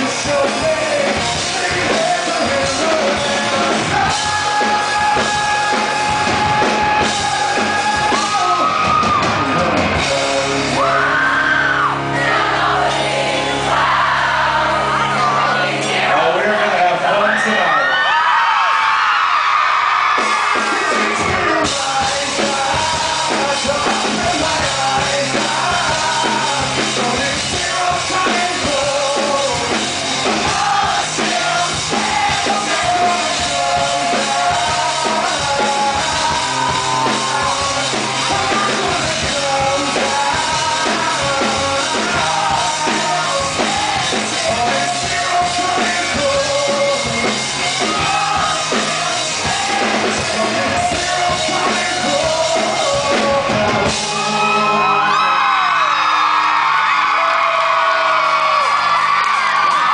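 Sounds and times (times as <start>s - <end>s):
man singing: 0.0s - 9.1s, 9.9s - 11.4s, 20.6s - 55.2s
live rock band playing: 0.0s - 59.9s.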